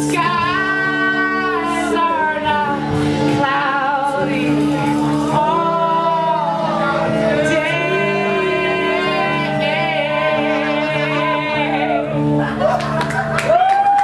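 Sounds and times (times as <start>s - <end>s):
live band music: 0.0s - 13.6s.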